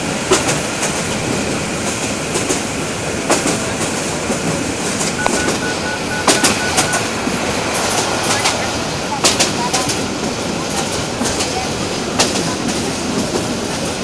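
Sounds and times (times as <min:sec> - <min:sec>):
train rumbling on track: 0:00.0 - 0:14.0
faint high steady tone: 0:05.2 - 0:07.1.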